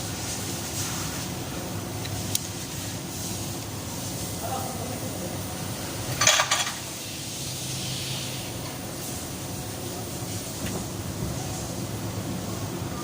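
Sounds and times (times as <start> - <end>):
steady low hum: 0.0 - 13.0
metal engine parts clattering: 6.1 - 6.8.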